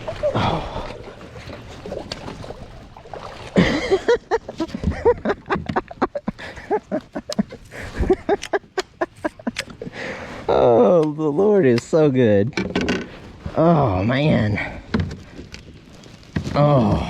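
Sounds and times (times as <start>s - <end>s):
fish thrashing against kayak hull: 0.0s - 6.4s.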